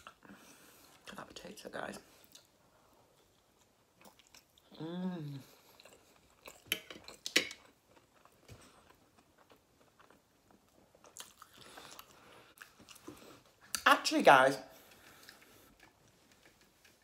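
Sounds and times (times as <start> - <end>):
quiet chewing: 2.0 - 13.8, 14.7 - 17.0
person humming: 4.7 - 5.5.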